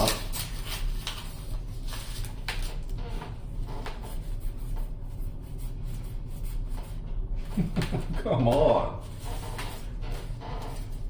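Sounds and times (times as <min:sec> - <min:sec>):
wrappers rustling: 0:00.0 - 0:02.8.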